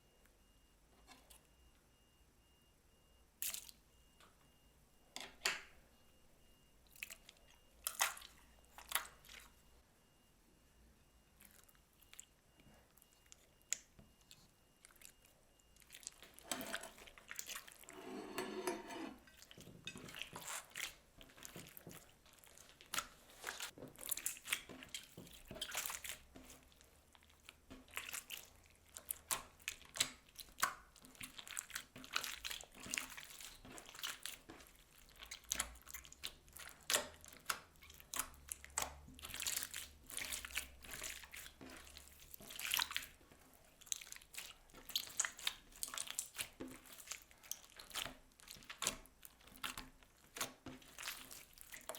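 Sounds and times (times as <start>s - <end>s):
slime squelch: 3.3s - 4.6s, 5.3s - 9.8s, 11.0s - 51.9s
slime crackling and popping: 20.3s - 51.9s.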